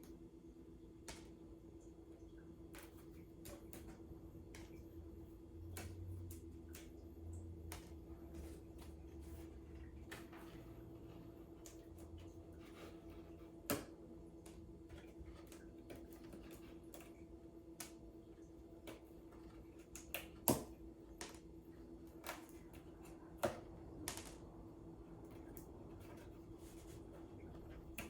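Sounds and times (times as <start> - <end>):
steady low hum: 0.0 - 28.0
cardboard clicks and taps: 18.8 - 21.4.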